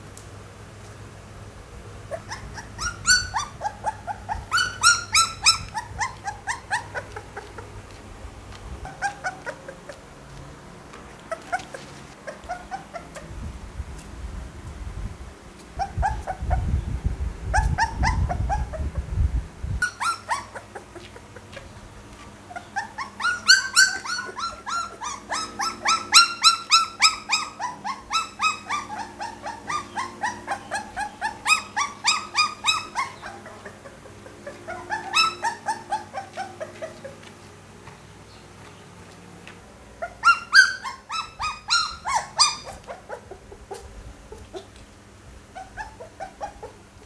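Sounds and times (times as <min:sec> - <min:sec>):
puppies whimpering and yelping: 0:02.0 - 0:10.3, 0:11.0 - 0:13.4, 0:15.6 - 0:16.8, 0:17.4 - 0:19.2, 0:19.8 - 0:37.6, 0:39.9 - 0:44.8, 0:45.4 - 0:47.0
low rumbling noise: 0:12.1 - 0:19.8.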